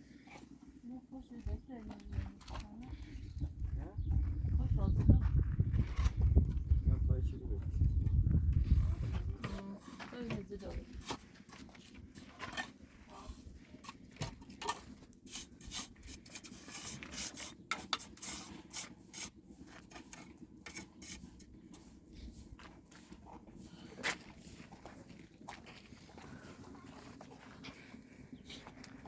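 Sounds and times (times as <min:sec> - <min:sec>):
rubbing and scraping strokes: 0:08.6 - 0:25.0.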